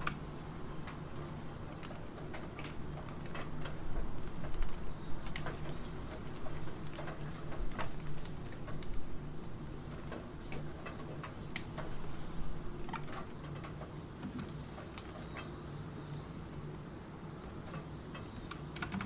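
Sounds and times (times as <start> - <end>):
computer keyboard typing: 17.7 - 19.0.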